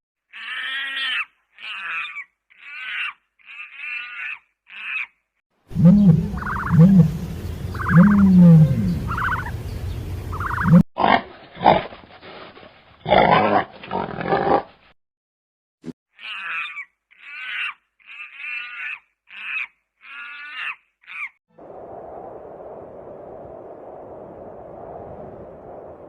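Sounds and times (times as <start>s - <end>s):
short harsh animal calls: 0.3s - 9.5s, 16.1s - 21.4s
animal grunting: 5.7s - 9.5s, 13.0s - 14.7s.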